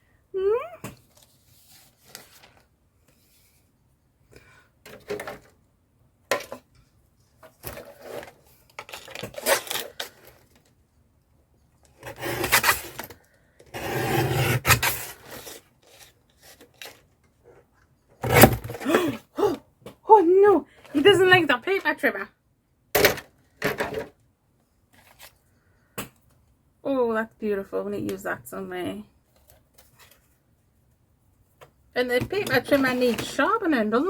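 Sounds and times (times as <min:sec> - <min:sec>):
paper rustling: 0:01.1 - 0:03.6
paper trimmer blade rasping: 0:12.0 - 0:13.0, 0:13.8 - 0:15.5.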